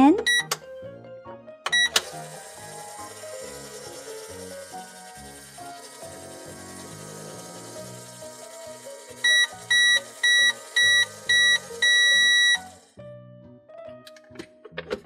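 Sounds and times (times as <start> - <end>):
toy microwave beeps: 0.0 - 0.6, 1.7 - 12.9
background music: 0.0 - 15.0.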